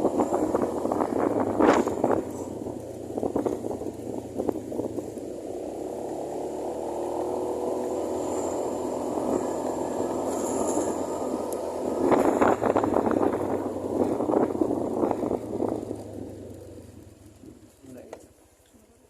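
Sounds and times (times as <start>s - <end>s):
wind on microphone: 0.0s - 5.2s, 7.8s - 16.4s
scooter engine running: 0.0s - 19.0s.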